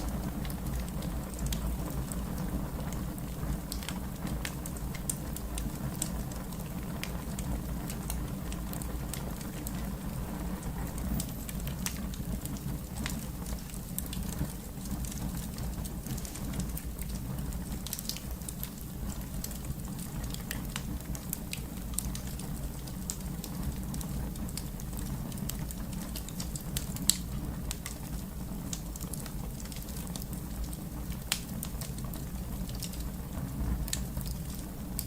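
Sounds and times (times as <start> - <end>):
sharp pops and snaps: 0.0 - 9.8, 10.9 - 35.0
wood fire crackling: 0.0 - 35.0.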